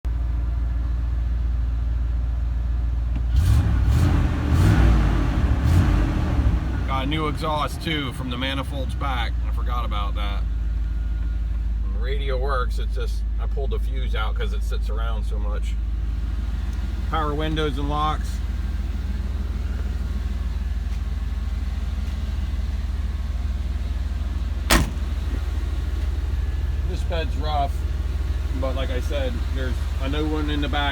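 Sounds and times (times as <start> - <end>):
truck engine idling: 6.1 - 30.9
sharp bang: 24.7 - 25.2.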